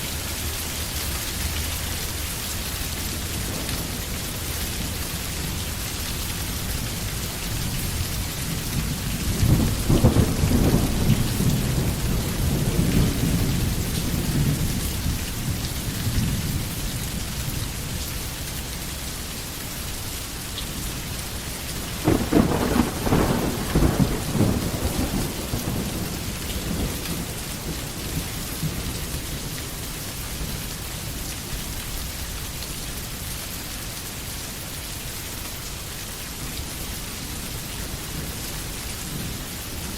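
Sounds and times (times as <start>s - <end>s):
steady rain: 0.0s - 39.9s
thunder rumbling: 6.7s - 16.8s, 21.8s - 29.6s.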